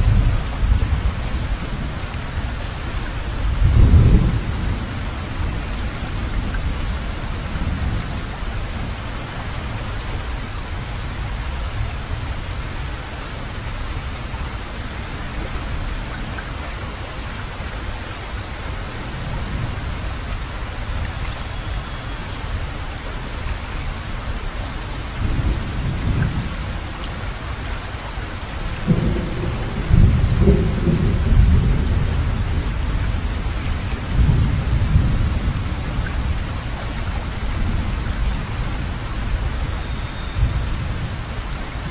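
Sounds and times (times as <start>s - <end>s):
heavy rain: 0.0s - 41.9s
thunder rumbling: 3.4s - 9.0s, 28.8s - 39.8s.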